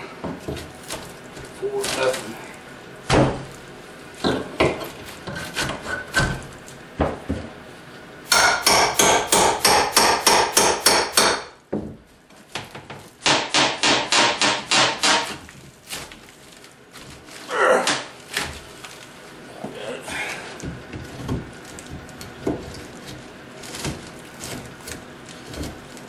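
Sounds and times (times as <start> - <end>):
hammer striking wooden shelf: 8.3 - 12.0, 13.2 - 15.4.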